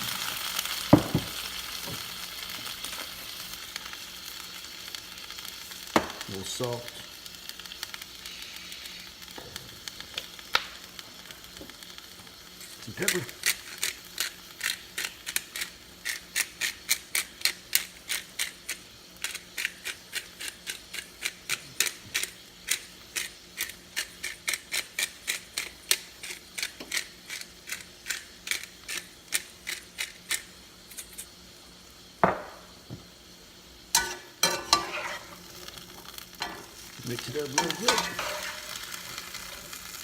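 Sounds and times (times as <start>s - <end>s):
pepper grinder clicking: 13.0s - 31.3s.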